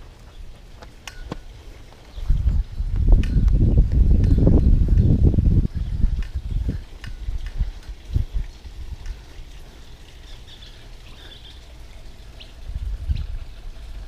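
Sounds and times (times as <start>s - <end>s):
birds chirping faintly: 0.0s - 14.0s
low thumps and rumble: 2.2s - 9.3s.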